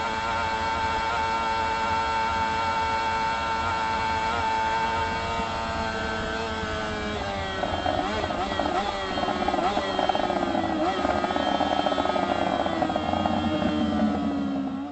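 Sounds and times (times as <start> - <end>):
motorcycle engine running: 0.0 - 14.9
low wind rumble: 10.2 - 14.9.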